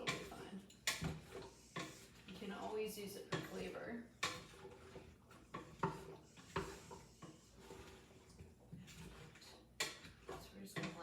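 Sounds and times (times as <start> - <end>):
utensil scraping a pot: 0.0 - 11.0.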